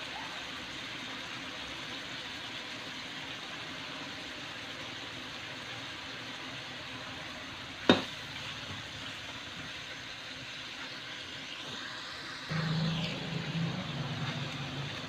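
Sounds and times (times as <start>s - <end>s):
food sizzling in a wok: 0.0s - 15.0s
low hum: 12.5s - 15.0s.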